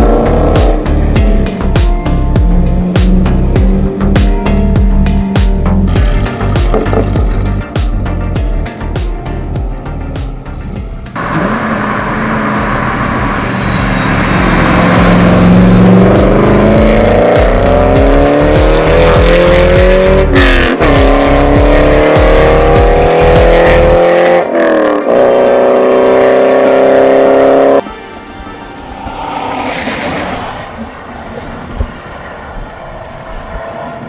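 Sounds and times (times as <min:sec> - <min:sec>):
car engine accelerating hard: 0:00.0 - 0:04.8, 0:11.2 - 0:27.8.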